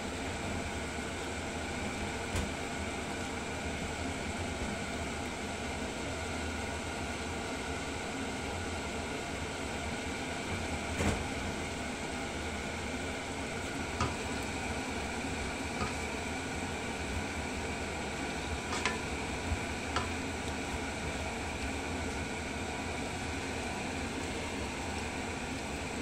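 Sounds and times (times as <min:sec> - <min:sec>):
food sizzling in a pan: 0:09.2 - 0:26.0.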